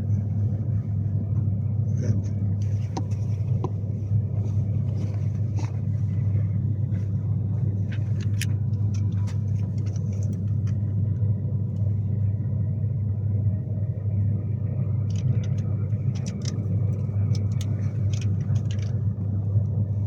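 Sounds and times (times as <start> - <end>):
train rumble inside carriage: 0.0 - 20.0
faint clicks and rattles: 4.5 - 11.2, 15.0 - 19.8.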